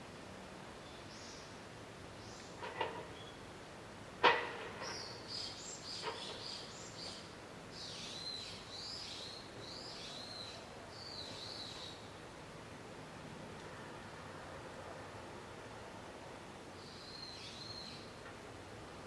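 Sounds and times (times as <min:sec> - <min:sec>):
songbird singing: 0:04.8 - 0:12.1, 0:16.8 - 0:18.2.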